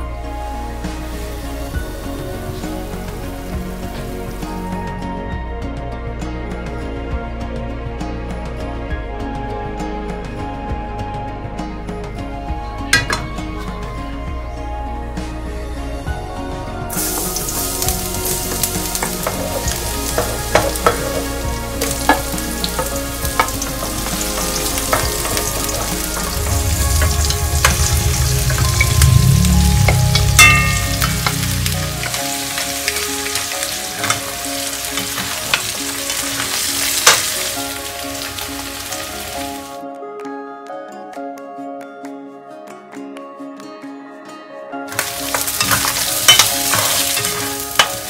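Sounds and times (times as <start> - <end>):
food sizzling in hot oil: 0.6 - 4.6, 16.9 - 39.8, 44.9 - 48.0.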